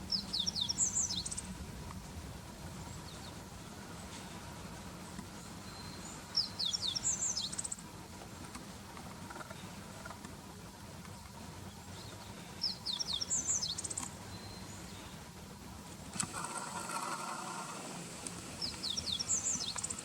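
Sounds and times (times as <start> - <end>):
bunting singing: 0.0 - 1.5, 5.4 - 7.8, 11.7 - 15.2, 16.1 - 20.0.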